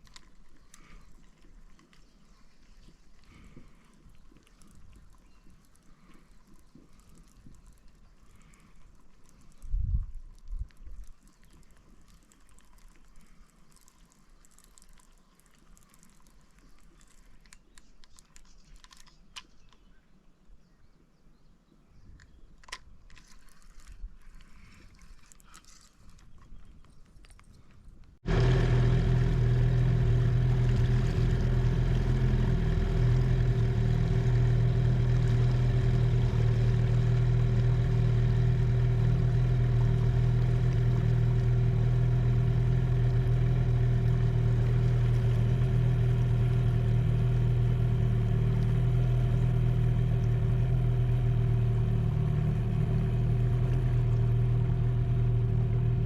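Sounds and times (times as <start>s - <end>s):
outboard motor running: 28.2s - 56.0s.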